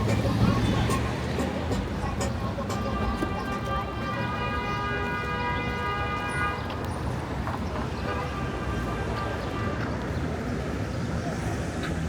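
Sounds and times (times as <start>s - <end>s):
traffic rumble: 0.0s - 4.8s.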